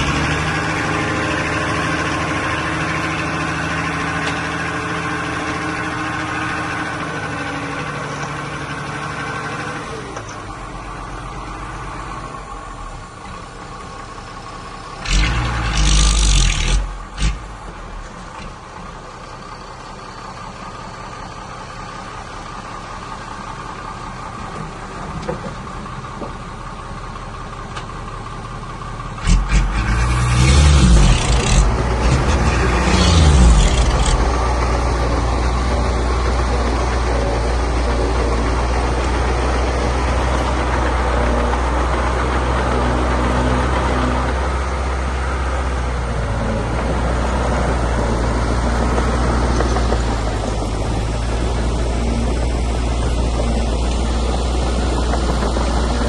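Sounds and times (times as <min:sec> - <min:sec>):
engine rough surges: 0:00.0 - 0:10.6, 0:29.1 - 0:56.0
diesel engines idling: 0:00.0 - 0:56.0.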